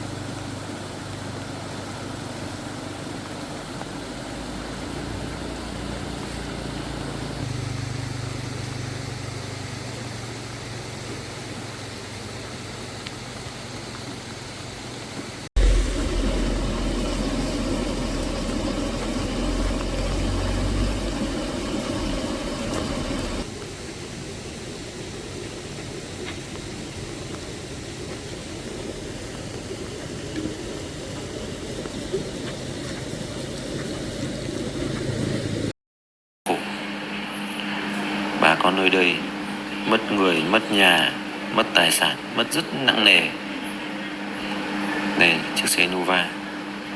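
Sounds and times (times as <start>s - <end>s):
vehicle engines running: 0.0s - 14.5s, 15.6s - 23.5s, 31.2s - 35.7s
deep engine rumble: 15.6s - 23.5s.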